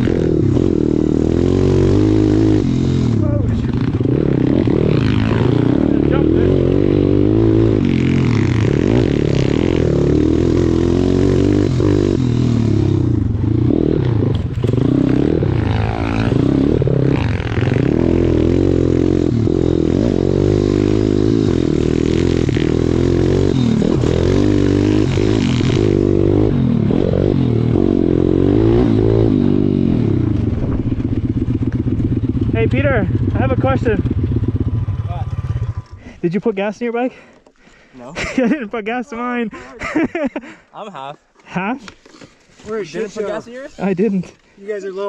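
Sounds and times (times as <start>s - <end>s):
pit bike engine revving: 0.0s - 36.2s.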